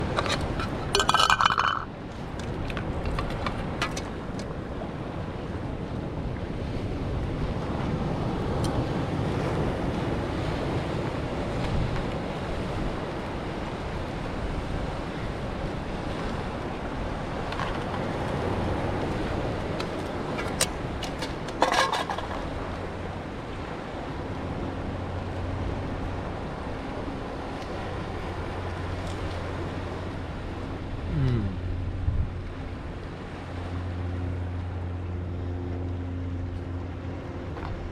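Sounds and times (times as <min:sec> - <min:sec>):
wind on microphone: 0:00.0 - 0:34.0
ocean surf rumble: 0:00.0 - 0:37.9
clinking rattle: 0:00.1 - 0:01.9.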